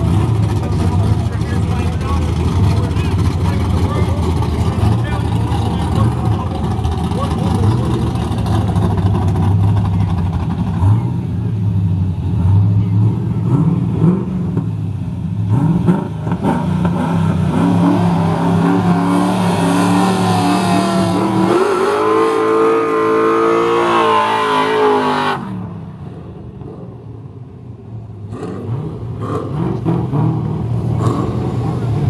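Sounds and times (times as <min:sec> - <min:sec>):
car engine revving: 0:00.0 - 0:27.3, 0:28.1 - 0:32.0
tires screeching in burnout: 0:15.4 - 0:25.8.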